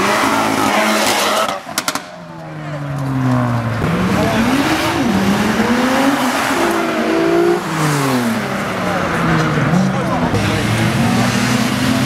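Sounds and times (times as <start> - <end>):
car engine accelerating hard: 3.0 - 12.0.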